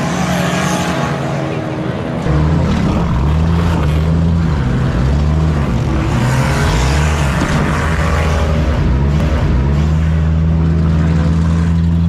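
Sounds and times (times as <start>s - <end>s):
car engine running under load: 1.5s - 12.0s.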